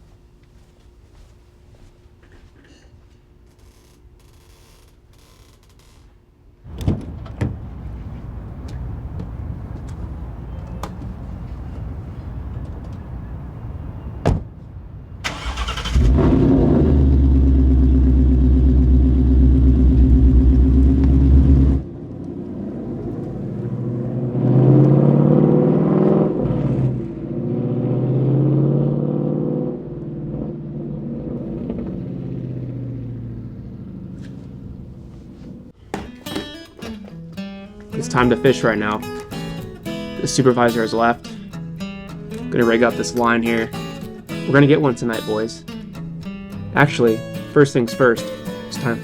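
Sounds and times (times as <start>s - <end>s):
car engine starting and running: 6.7s - 14.2s, 15.2s - 35.8s
engine revving and accelerating: 15.3s - 35.6s.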